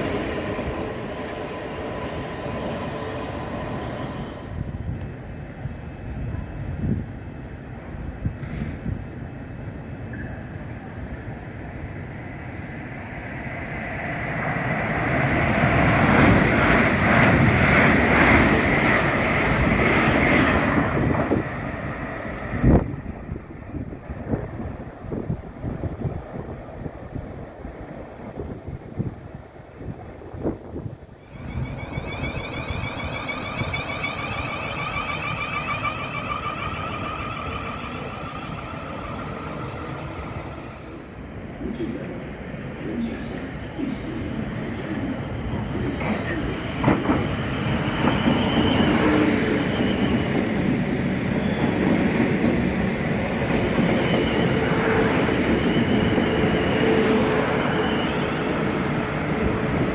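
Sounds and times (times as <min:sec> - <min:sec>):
wind buffeting microphone: 0:00.0 - 0:09.8, 0:14.2 - 0:43.0, 0:43.9 - 0:59.9
train passing: 0:00.0 - 0:59.9.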